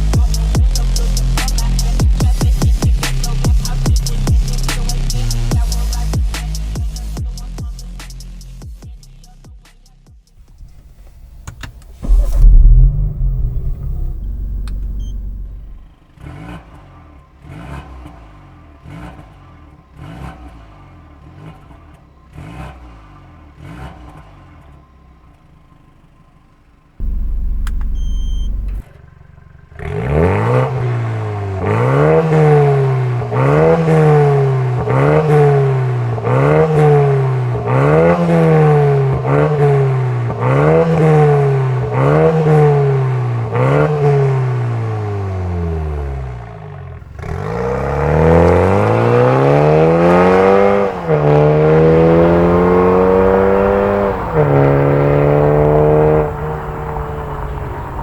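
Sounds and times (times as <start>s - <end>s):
low rumble: 10.4s - 15.9s, 27.0s - 28.8s
car accelerating through gears: 10.4s - 24.8s, 27.0s - 29.0s, 29.7s - 58.0s
car engine revving: 10.4s - 26.2s, 27.0s - 58.0s.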